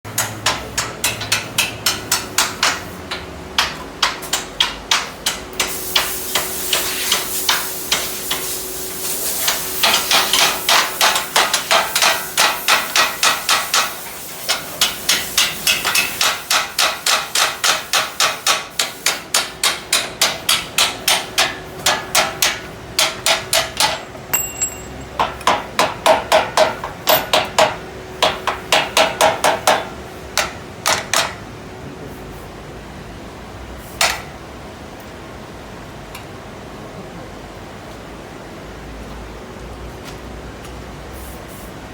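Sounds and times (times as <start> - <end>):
rapid hammering on steel gate: 9.8 - 31.4.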